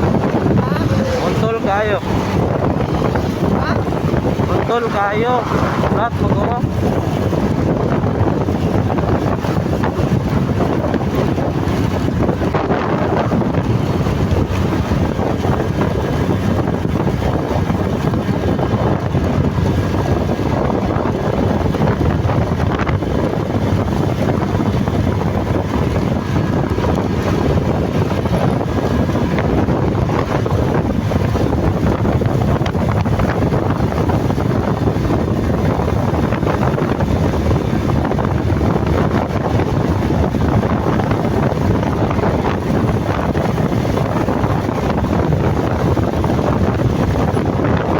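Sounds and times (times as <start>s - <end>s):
motorcycle engine: 0.0s - 47.9s
road noise: 0.0s - 47.9s
wind rushing over microphone: 0.0s - 47.9s.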